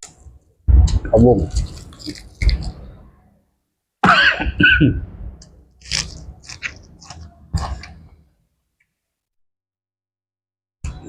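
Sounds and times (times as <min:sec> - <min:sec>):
chewing and crunchy biting: 0:01.5 - 0:03.0, 0:05.8 - 0:08.1.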